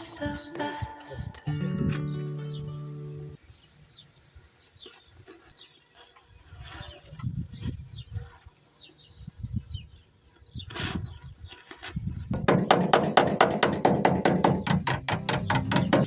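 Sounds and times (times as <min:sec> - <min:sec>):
small birds chirping: 0:00.0 - 0:16.0
low dull thuds: 0:12.0 - 0:16.0.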